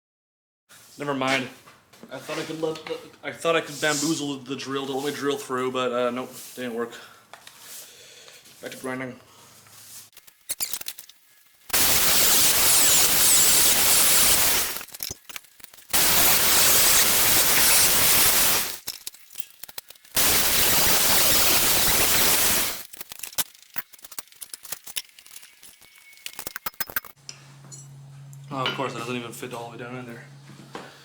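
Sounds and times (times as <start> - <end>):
grinder grinding steel: 10.1 - 27.2.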